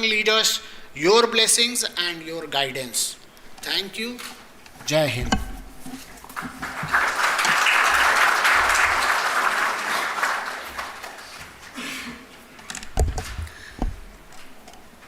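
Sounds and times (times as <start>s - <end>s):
thumps: 5.1s - 6.2s
audience applauding: 6.2s - 11.8s.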